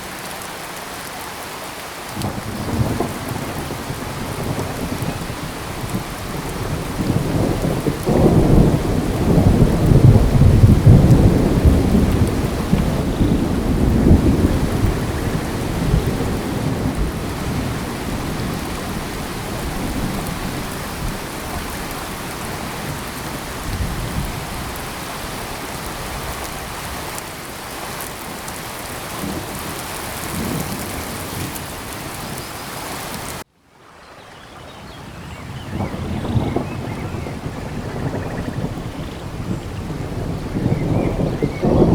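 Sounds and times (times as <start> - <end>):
steady rain: 0.0 - 41.9
rolling thunder: 2.2 - 26.8, 35.4 - 41.9.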